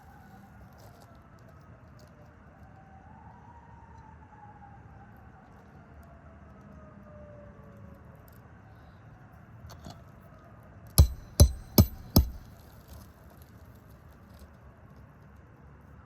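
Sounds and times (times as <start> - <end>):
hammer blows with metallic ring: 11.0 - 12.5.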